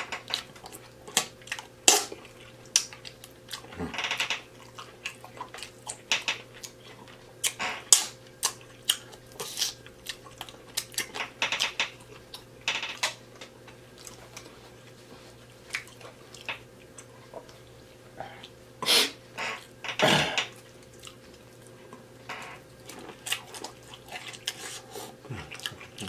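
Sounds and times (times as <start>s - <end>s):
wet chewing and lip smacking: 0.3s - 3.8s, 4.6s - 11.2s, 15.4s - 17.6s, 20.5s - 22.1s, 22.8s - 26.0s.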